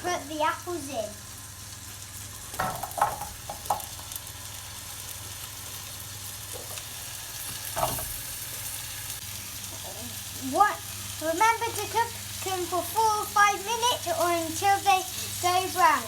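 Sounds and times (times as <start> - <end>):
apples sizzling in butter: 0.0 - 16.0
food clattering in pan: 2.5 - 4.1, 7.5 - 8.3.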